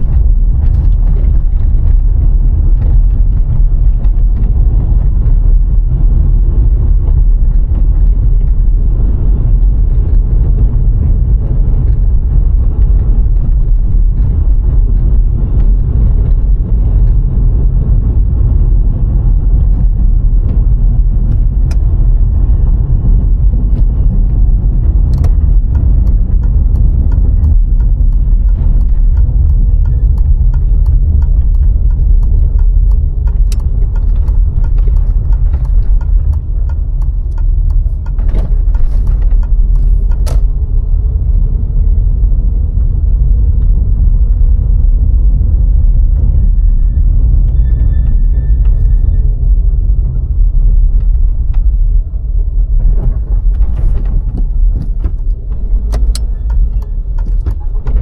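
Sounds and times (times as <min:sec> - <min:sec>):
car tyres and engine rumble: 0:00.0 - 0:58.0
knocks and rattles: 0:19.6 - 0:40.6, 0:52.7 - 0:58.0.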